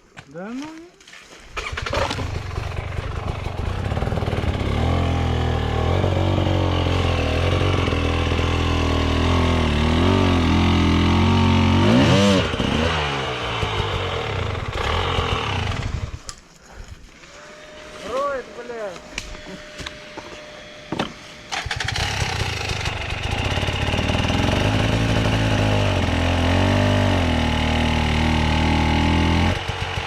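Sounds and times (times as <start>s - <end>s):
motorcycle engine revving hard: 1.6s - 16.2s, 21.5s - 30.0s.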